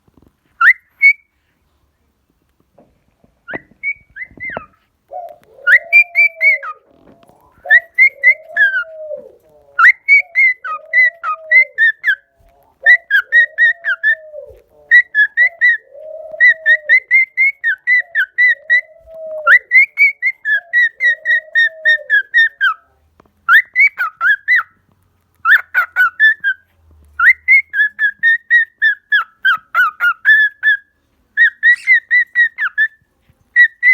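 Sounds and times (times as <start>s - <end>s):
cockatiels chirping whistle notes: 31.4s - 33.0s.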